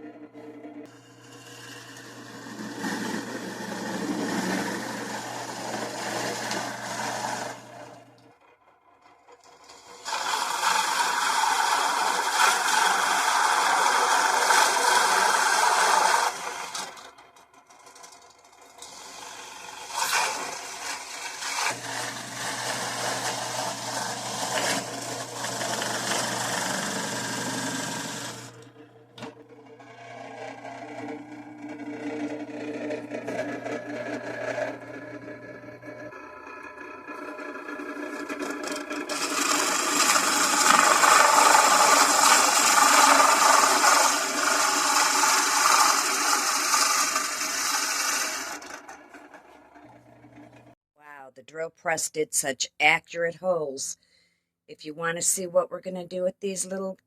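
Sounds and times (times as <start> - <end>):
drill press motor hum: 0.0 - 50.8
drill bit cutting gourd shell: 0.8 - 8.4, 9.4 - 50.4.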